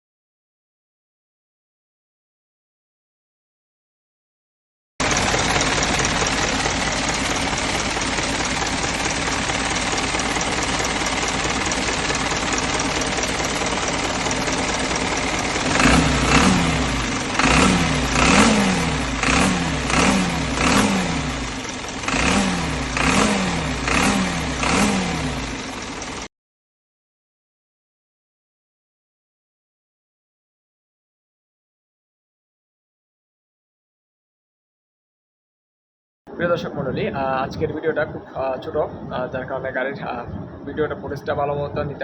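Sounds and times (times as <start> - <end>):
diesel engine revving: 5.0 - 26.3.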